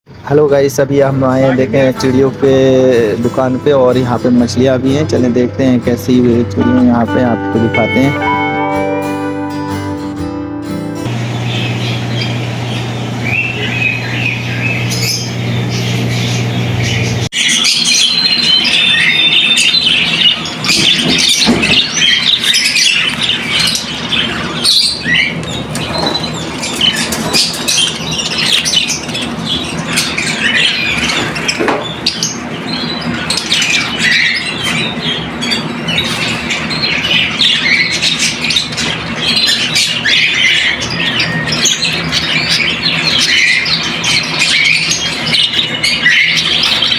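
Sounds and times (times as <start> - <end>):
caged birds chirping and squawking: 0.1 - 8.6, 11.0 - 46.9
guitar music: 1.6 - 17.1.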